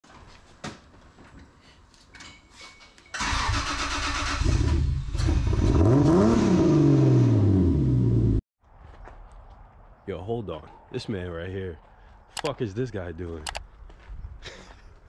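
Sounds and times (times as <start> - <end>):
car engine revving and idling: 4.4 - 8.4.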